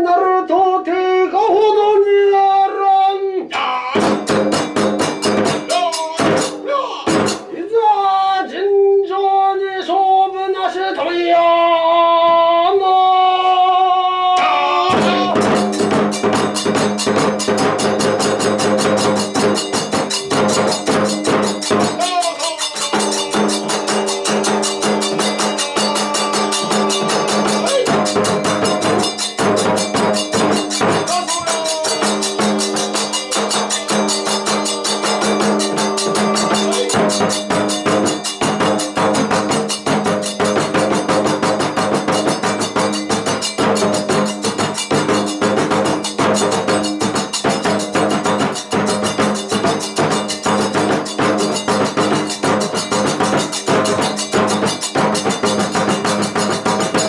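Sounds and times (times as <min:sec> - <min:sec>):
drums striking fast: 0:03.9 - 0:08.2, 0:14.4 - 0:57.0
metallic hand cymbals: 0:04.0 - 0:07.6, 0:15.0 - 0:57.0
chanted voice holding a note: 0:05.5 - 0:11.7, 0:12.6 - 0:15.6, 0:19.7 - 0:38.1.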